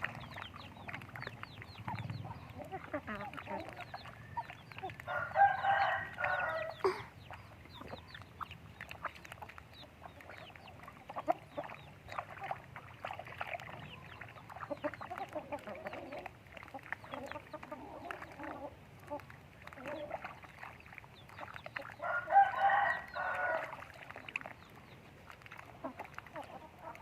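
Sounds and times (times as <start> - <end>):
chickens clucking and chirping: 0.0 - 27.0
rooster crowing: 5.1 - 6.8, 22.0 - 23.7.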